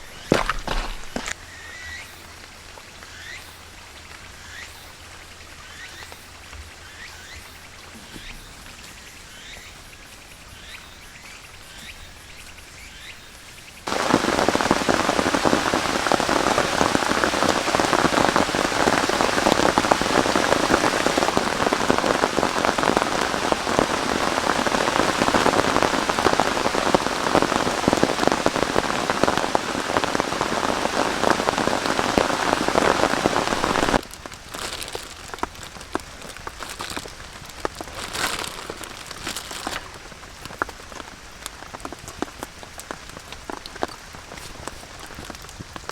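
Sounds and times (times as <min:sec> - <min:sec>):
heavy rain: 0:13.8 - 0:45.9.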